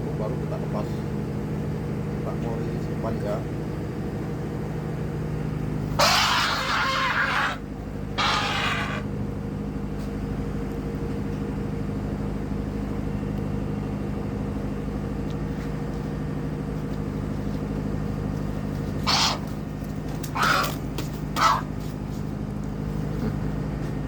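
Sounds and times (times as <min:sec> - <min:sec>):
steady engine hum: 0:00.0 - 0:24.0
bird harsh calls: 0:05.9 - 0:09.1, 0:19.0 - 0:22.0.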